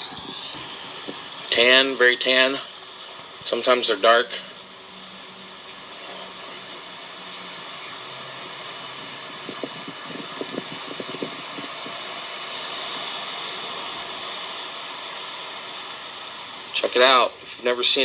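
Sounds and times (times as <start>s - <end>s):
honey bees buzzing: 0.0s - 1.5s, 4.2s - 16.7s.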